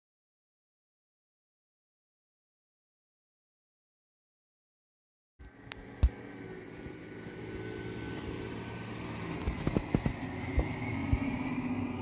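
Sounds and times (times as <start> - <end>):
garbage truck diesel engine: 5.9 - 12.0.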